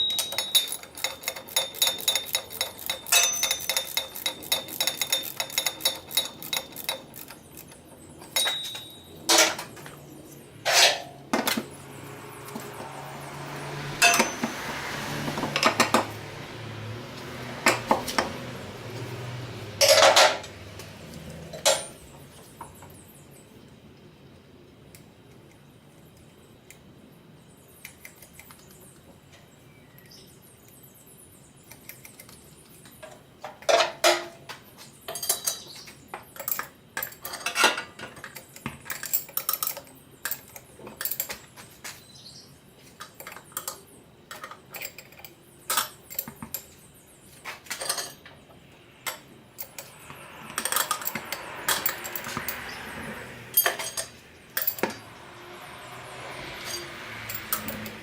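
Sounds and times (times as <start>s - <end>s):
metal tools clinking and clanking: 0.0s - 13.2s, 14.0s - 16.1s, 19.8s - 20.6s, 21.5s - 22.1s, 33.0s - 42.0s, 43.0s - 46.8s, 47.4s - 58.0s.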